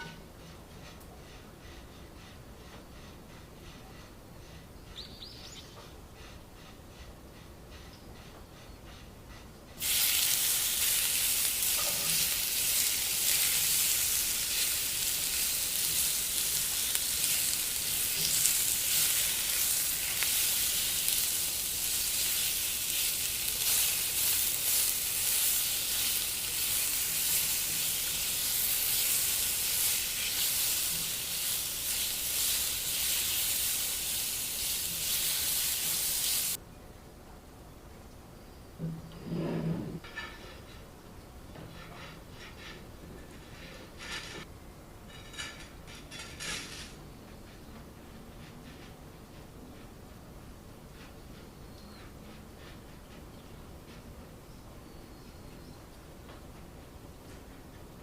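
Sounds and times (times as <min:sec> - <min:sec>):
food sizzling in a pan: 0:09.8 - 0:36.6.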